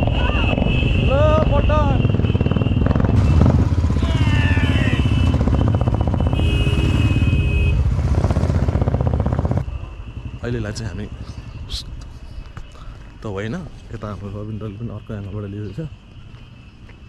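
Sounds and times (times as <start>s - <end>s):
motorcycle engine running: 0.1s - 11.3s.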